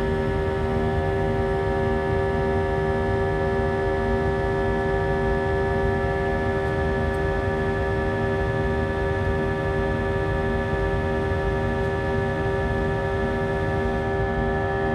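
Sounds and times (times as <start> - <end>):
jet engine drone in cabin: 0.0 - 14.9.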